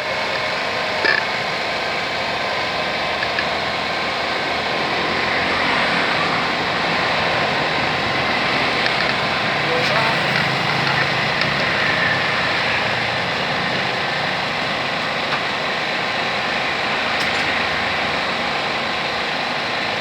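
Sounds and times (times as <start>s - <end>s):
vehicle engine noise: 0.0s - 20.0s.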